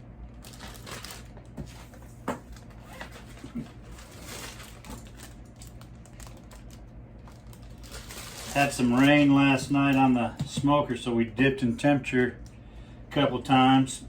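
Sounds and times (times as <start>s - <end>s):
plastic bag rustling: 0.3s - 10.5s.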